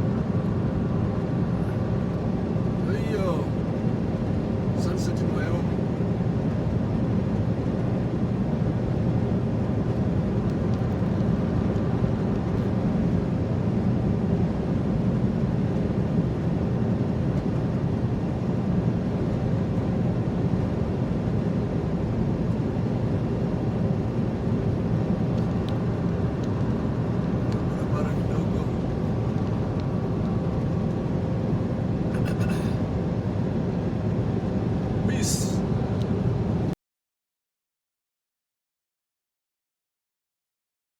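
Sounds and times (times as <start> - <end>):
road noise: 25.0 - 36.7
truck engine drone: 25.6 - 36.7.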